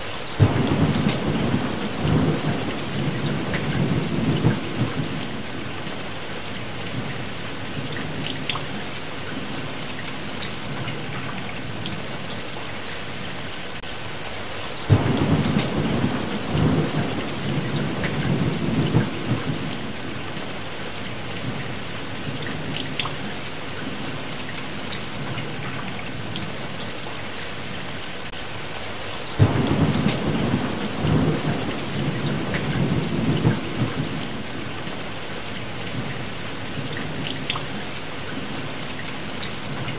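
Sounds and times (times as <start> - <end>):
heavy rain: 0.0 - 39.9
thunder crack and rumble: 0.4 - 12.4, 14.9 - 20.6, 29.4 - 35.0.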